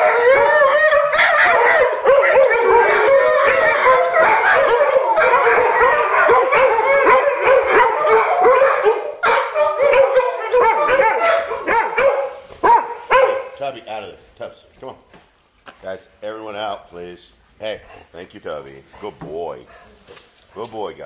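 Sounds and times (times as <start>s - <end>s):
dogs howling and yipping: 0.0s - 13.5s.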